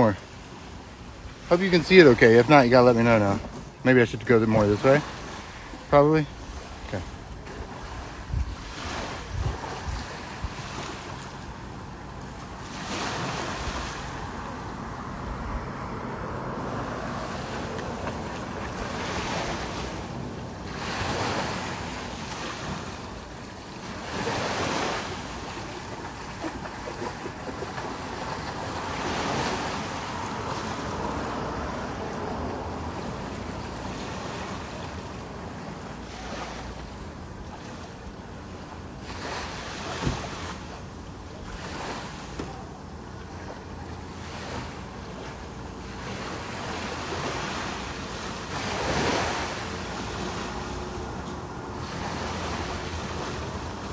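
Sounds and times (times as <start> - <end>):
ocean waves on a beach: 0.0 - 53.9
wind buffeting microphone: 6.4 - 12.2.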